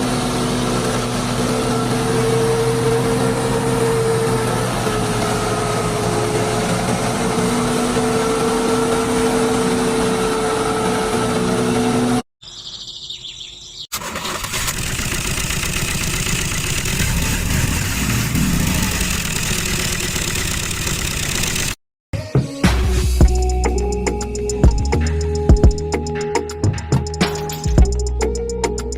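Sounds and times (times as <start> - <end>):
noisy machine: 0.0 - 12.2, 14.0 - 21.8.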